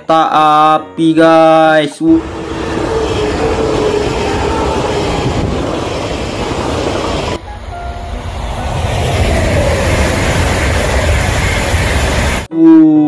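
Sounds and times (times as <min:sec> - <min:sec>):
electric trains passing: 0:02.0 - 0:12.5.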